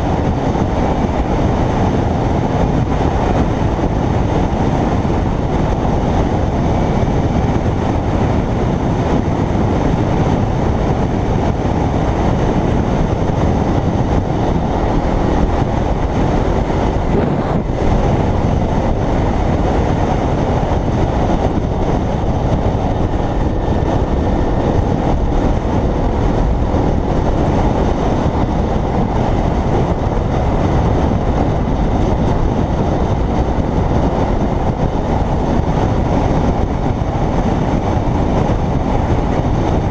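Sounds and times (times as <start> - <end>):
motorcycle riding at speed: 0.0 - 39.9
wind rushing on microphone: 0.0 - 39.9.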